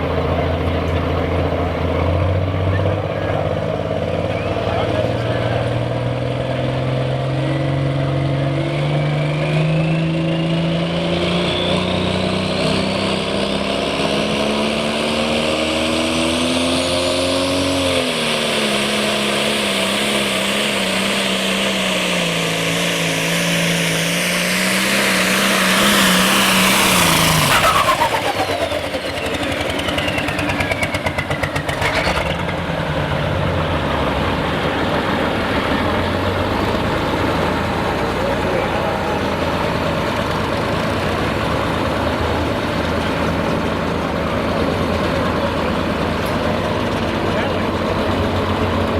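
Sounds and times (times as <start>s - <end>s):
tractor engine running hard: 0.0s - 48.9s
turbo whistle: 26.9s - 31.1s.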